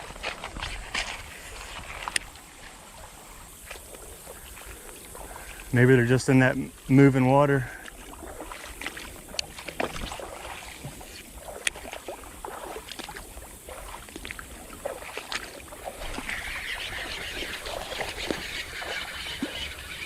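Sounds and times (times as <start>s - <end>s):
creek water running: 0.0s - 20.0s
small clicks and splashes: 7.8s - 20.0s.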